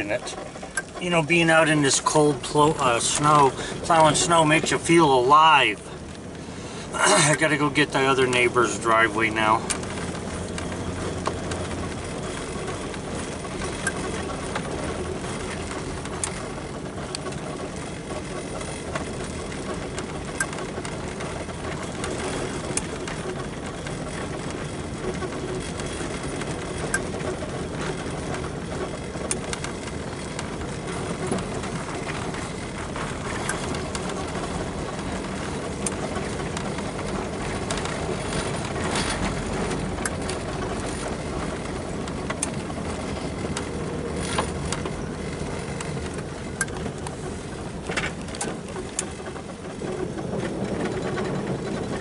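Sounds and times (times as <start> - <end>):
tractor engine running: 0.0 - 52.0.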